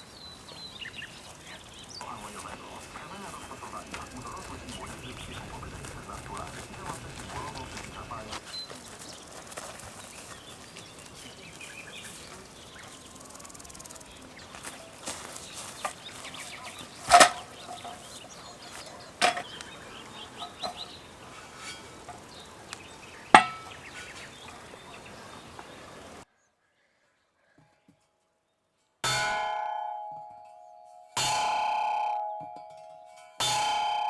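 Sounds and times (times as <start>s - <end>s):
birds calling: 0.0s - 27.7s
sharp metal strikes ringing: 23.3s - 23.8s, 29.0s - 34.0s.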